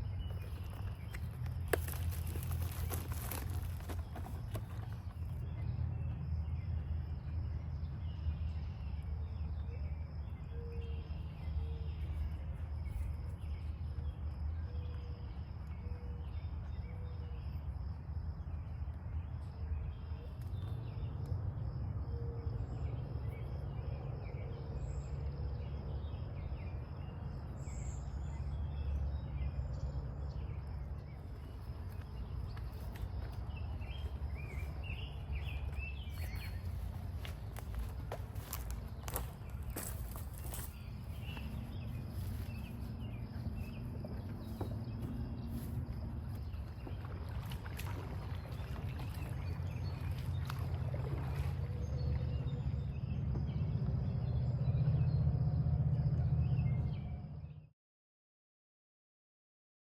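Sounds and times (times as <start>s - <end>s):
low rumble: 49.4s - 57.7s.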